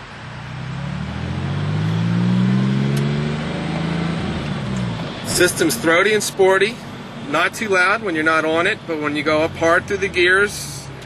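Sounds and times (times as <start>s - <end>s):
car engine accelerating: 0.0s - 7.4s.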